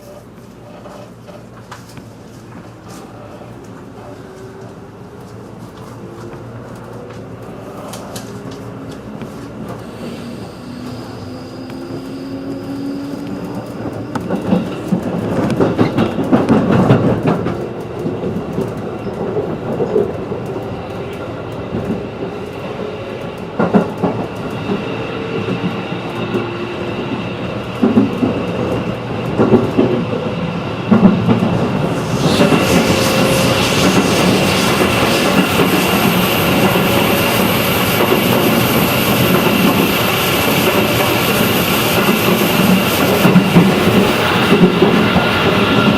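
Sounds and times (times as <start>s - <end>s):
train running noise: 0.0s - 45.9s
train motor whine: 6.1s - 16.2s, 31.0s - 45.9s
wheels clacking over rail joints: 11.7s - 22.6s.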